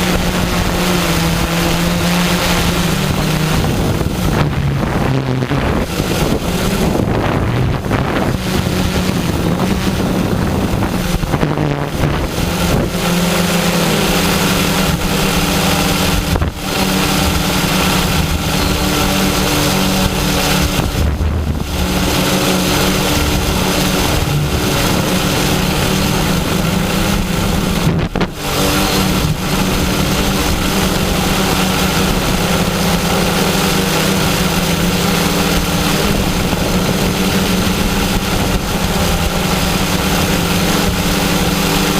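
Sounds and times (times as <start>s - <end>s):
drone propellers buzzing: 0.0s - 41.9s
wind buffeting microphone: 0.0s - 41.9s.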